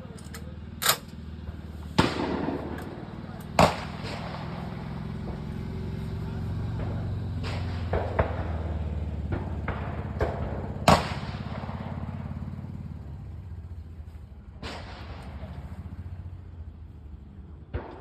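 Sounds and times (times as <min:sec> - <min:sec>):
steady low hum: 0:00.0 - 0:18.0
gunshots echoing: 0:02.0 - 0:12.6, 0:17.6 - 0:18.0.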